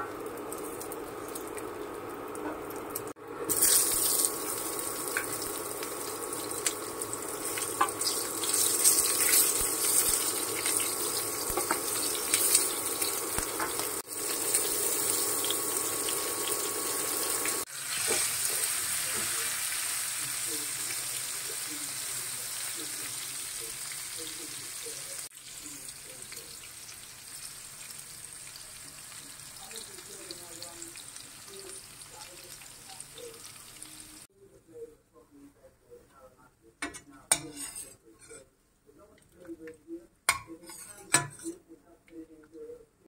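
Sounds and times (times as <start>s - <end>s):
food sizzling in hot oil: 0.0s - 34.3s
spatula scraping a pan: 36.9s - 38.5s, 40.3s - 41.6s.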